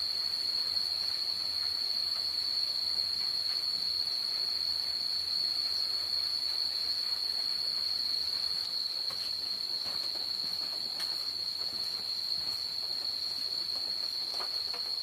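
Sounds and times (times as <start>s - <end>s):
faint background hiss: 0.0s - 15.0s
insects droning: 0.0s - 15.0s.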